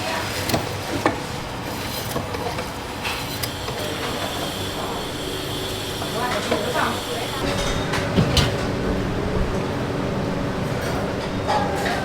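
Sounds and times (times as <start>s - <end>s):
traffic-like background noise: 2.4s - 12.0s.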